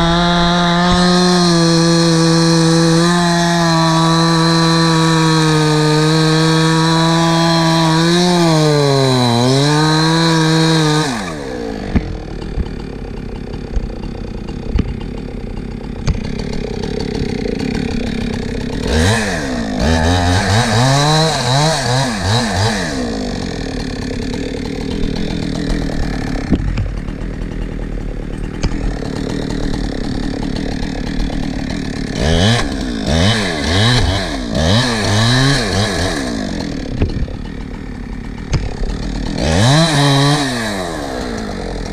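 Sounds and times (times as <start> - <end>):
chainsaw running and revving: 0.0 - 41.9
chainsaw knocks: 10.7 - 21.2, 24.0 - 40.8.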